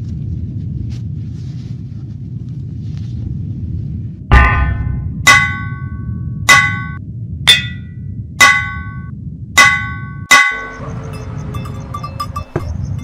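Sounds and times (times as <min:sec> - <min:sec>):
low steady rumble: 0:00.0 - 0:13.0
hammer clanging on anvil: 0:04.3 - 0:05.9, 0:06.5 - 0:09.0, 0:09.6 - 0:10.9, 0:11.6 - 0:12.8.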